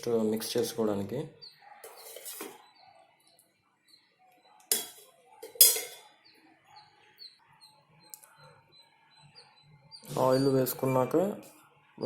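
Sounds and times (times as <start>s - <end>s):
small bird chirps: 1.3s - 4.7s, 6.0s - 11.2s
spoon clinking on metal pan: 4.6s - 6.2s.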